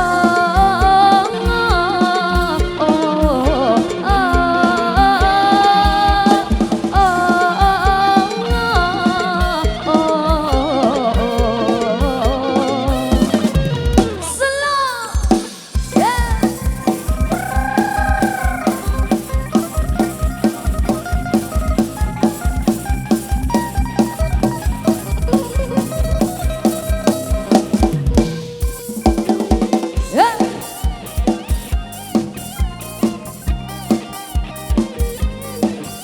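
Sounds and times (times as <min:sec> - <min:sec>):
drum kit beat: 0:00.0 - 0:36.0
sliding melodic lead line: 0:00.0 - 0:36.0.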